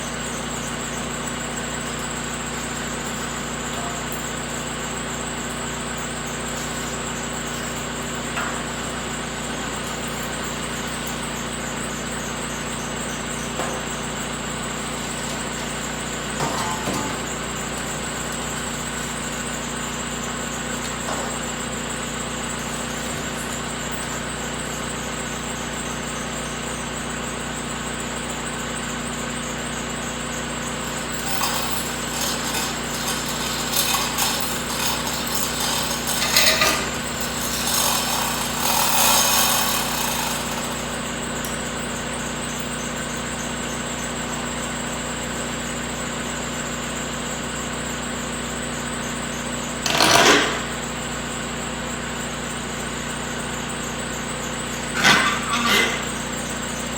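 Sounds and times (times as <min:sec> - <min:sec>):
mechanical clatter: 0:30.8 - 0:41.7, 0:49.8 - 0:50.9.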